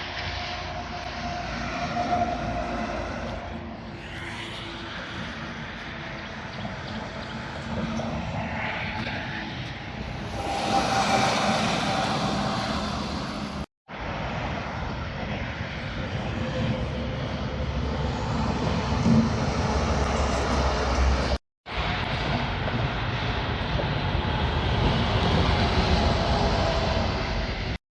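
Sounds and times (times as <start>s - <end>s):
diesel engine drone: 0.0s - 27.8s
trucks passing: 0.0s - 27.8s.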